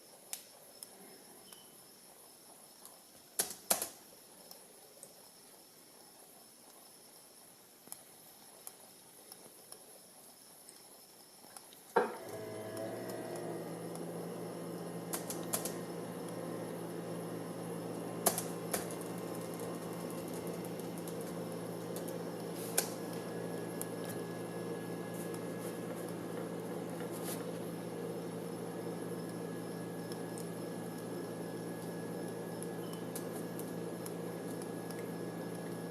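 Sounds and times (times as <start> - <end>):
gyroscope whirring hum: 12.1 - 35.9.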